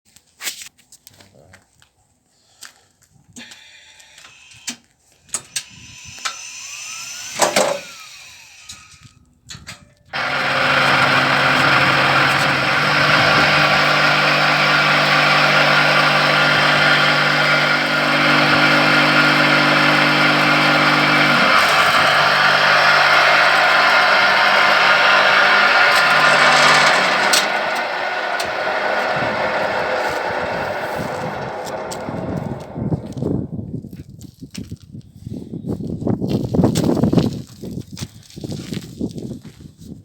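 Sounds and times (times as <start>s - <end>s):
knocks and clatter: 10.2s - 33.2s
block making machine running: 10.2s - 33.4s
low hum: 10.2s - 33.7s.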